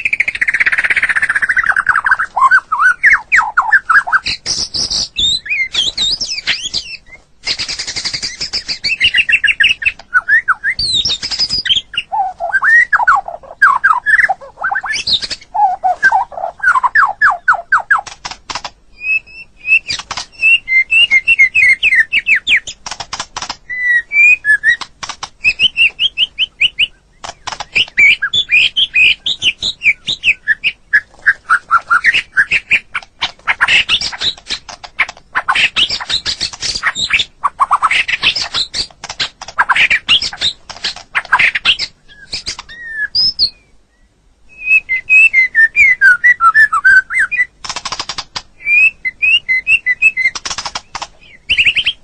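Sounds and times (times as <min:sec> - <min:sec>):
bird singing whistled phrases: 0:00.0 - 0:18.1, 0:19.0 - 0:22.8, 0:23.7 - 0:24.8, 0:25.4 - 0:33.0, 0:41.3 - 0:47.5, 0:48.6 - 0:50.4, 0:51.2 - 0:52.0
bird clicking and chattering: 0:00.0 - 0:18.8, 0:19.8 - 0:30.3, 0:31.0 - 0:42.8, 0:47.6 - 0:48.6, 0:50.0 - 0:52.0.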